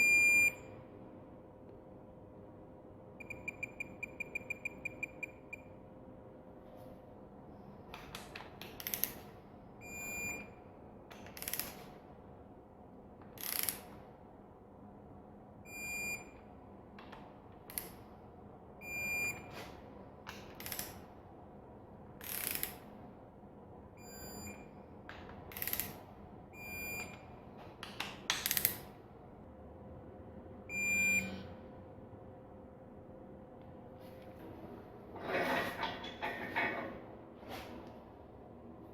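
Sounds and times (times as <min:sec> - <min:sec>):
hand ratchet clicking: 0:27.9 - 0:28.8.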